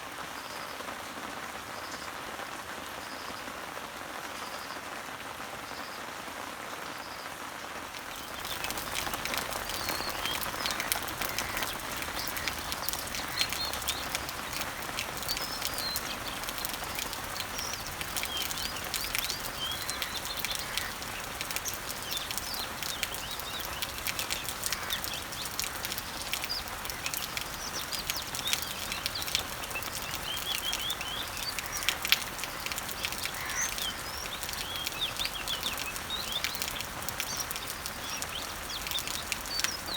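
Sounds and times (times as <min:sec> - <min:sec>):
rain pattering on leaves: 0:00.0 - 0:39.9
birds chirping: 0:08.0 - 0:39.9.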